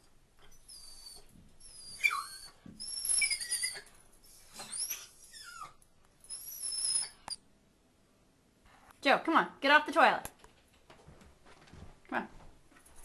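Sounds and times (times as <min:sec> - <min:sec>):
dog whining: 0:00.4 - 0:07.4.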